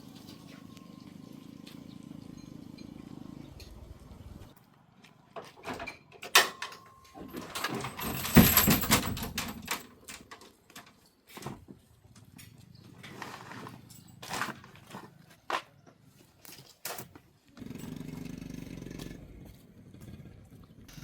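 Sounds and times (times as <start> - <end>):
metal parts and tools clattering: 5.6 - 11.7, 12.3 - 15.2, 16.4 - 18.0.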